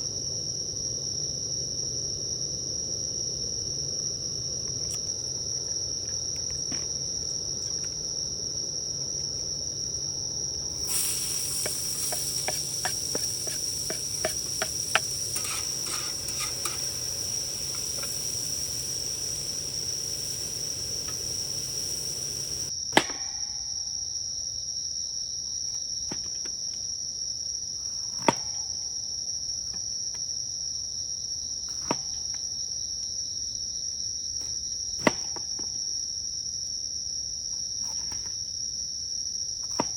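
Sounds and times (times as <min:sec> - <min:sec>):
crickets chirring: 0:00.0 - 0:22.8
hiss with small clicks: 0:10.8 - 0:22.7.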